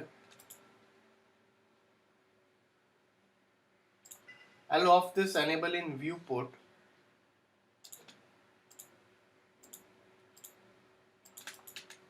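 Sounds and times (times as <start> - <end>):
faint steady hum: 0.0 - 12.0
computer mouse clicking: 0.3 - 0.6, 4.0 - 4.4, 7.8 - 9.0, 9.6 - 10.6, 11.2 - 12.0.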